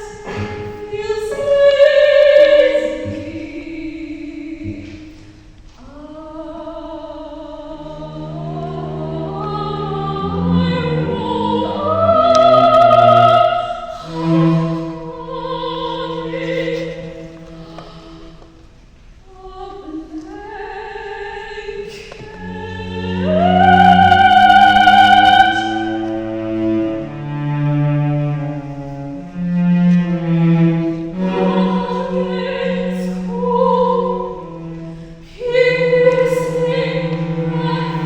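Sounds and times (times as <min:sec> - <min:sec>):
operatic singing: 0:00.0 - 0:18.6, 0:19.2 - 0:38.0
low string tones: 0:06.7 - 0:19.1, 0:22.2 - 0:38.0.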